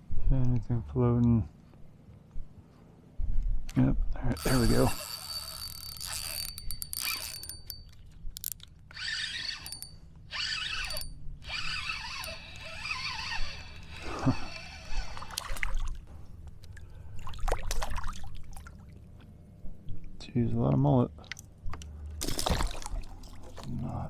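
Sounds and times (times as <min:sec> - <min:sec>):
water splashing and trickling: 0:15.0 - 0:19.2, 0:22.2 - 0:24.0.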